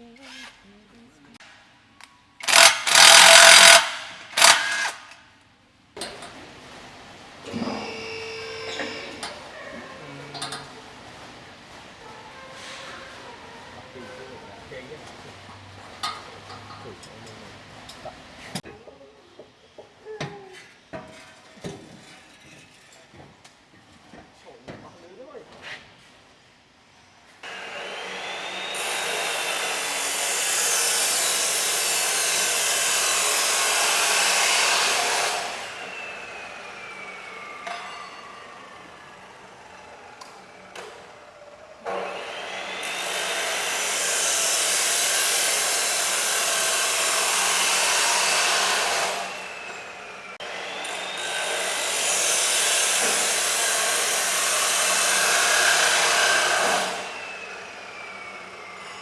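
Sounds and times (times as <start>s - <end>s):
high-speed power tool whining: 2.4s - 5.2s, 27.4s - 59.0s.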